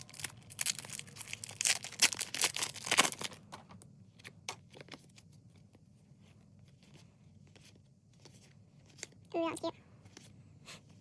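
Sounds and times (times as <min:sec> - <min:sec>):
foil pack tearing and crinkling: 0:00.0 - 0:03.4
cards rustling: 0:00.0 - 0:09.3.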